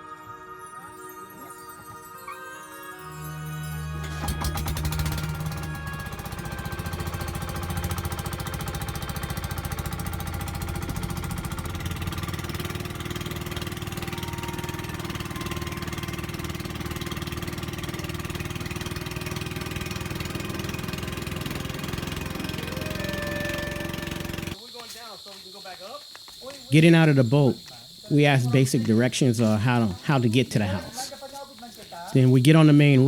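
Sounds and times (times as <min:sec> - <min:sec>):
boat engine knocking: 0:04.2 - 0:24.6.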